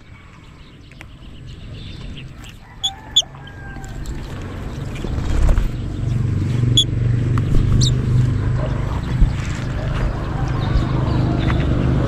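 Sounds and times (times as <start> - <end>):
low rumble: 3.7 - 12.0.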